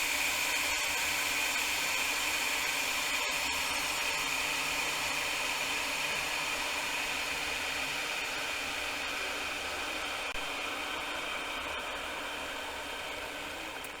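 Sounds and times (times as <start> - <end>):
electric kettle boiling: 0.0 - 14.0.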